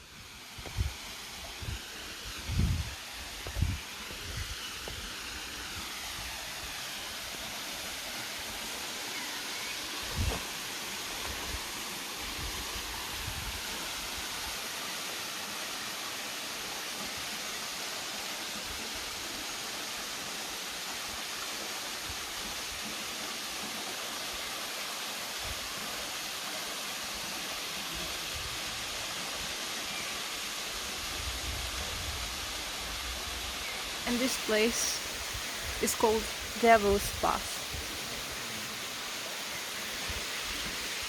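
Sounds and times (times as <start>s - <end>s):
river water rushing over falls: 33.8s - 41.0s.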